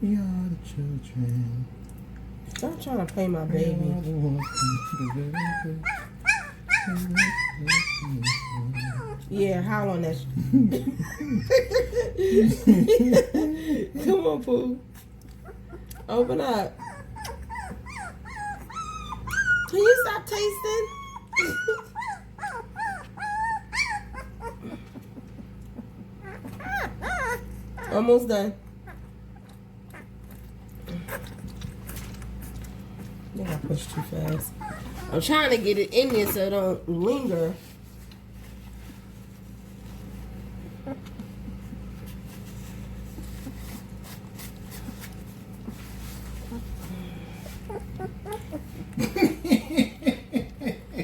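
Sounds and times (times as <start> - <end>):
steady low hum: 0.0 - 51.0
puppy whimpering and crying: 4.3 - 9.6, 15.3 - 30.2, 33.8 - 35.6, 40.6 - 41.9, 46.1 - 48.9.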